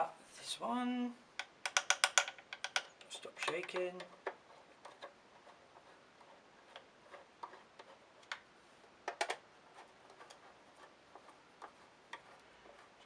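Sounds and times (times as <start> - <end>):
screwdriver and screws clicking: 1.4 - 5.2.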